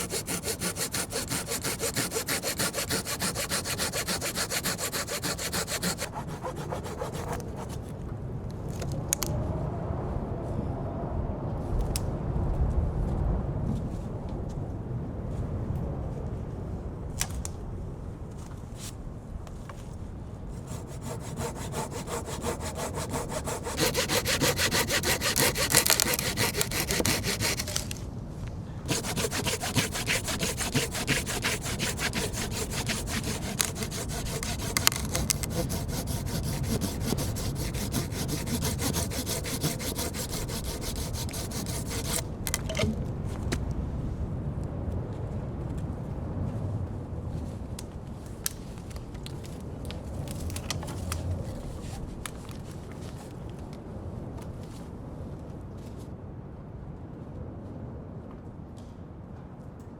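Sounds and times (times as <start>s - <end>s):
hand saw cutting wood: 0.0s - 7.8s, 20.6s - 28.0s, 28.9s - 42.7s.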